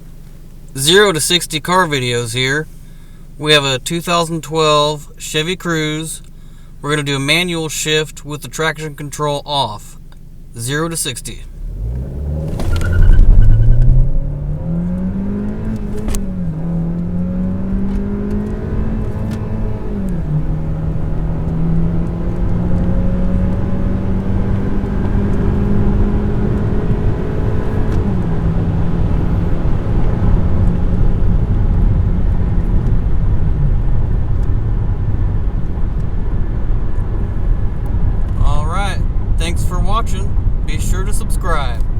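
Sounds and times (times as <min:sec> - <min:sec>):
car engine accelerating hard: 0:10.7 - 0:41.9.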